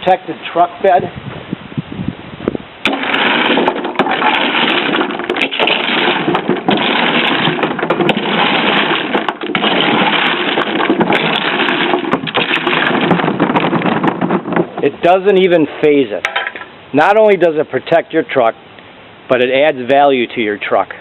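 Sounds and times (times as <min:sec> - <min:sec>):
machine grinding and knocking: 0:02.8 - 0:15.0.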